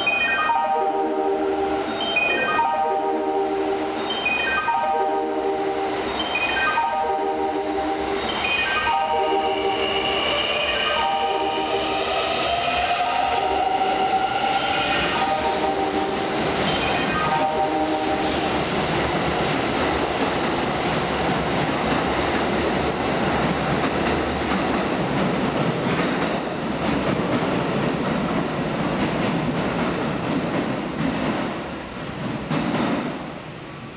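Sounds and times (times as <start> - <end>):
train wheel rumble and rail clatter: 5.4 - 33.9.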